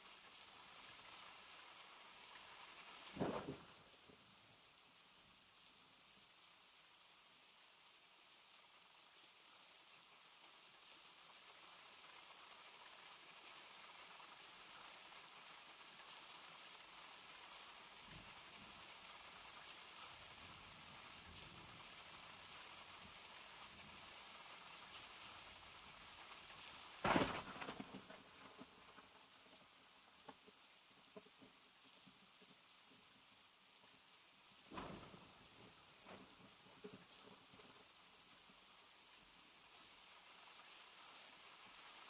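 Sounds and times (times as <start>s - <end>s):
steady rain: 0.0s - 42.0s
loud crack: 27.0s - 28.2s.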